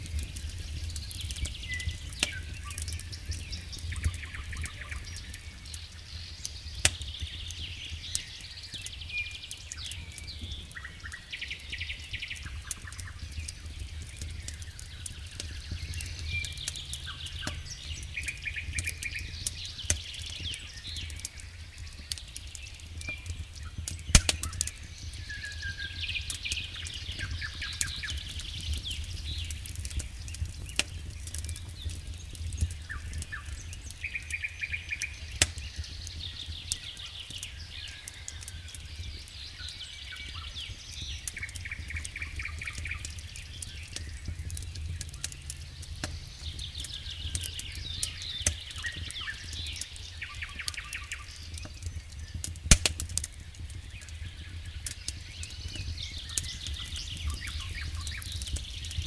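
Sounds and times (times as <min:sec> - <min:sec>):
wood fire crackling: 0:00.0 - 0:59.0
birds chirping: 0:00.1 - 0:59.0
low rumble: 0:43.1 - 0:48.4.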